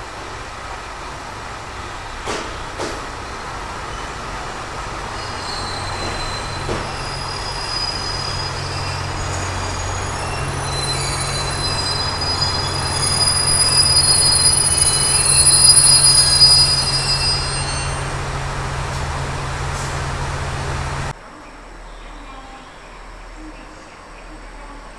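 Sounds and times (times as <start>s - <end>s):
train rumbling on rails: 0.0s - 21.3s
high thin wheel squeal: 3.2s - 21.1s.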